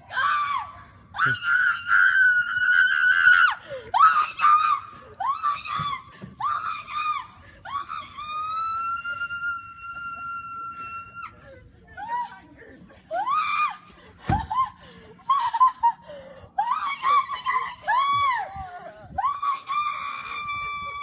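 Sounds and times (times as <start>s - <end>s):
woman screaming with excitement: 16.6s - 21.0s.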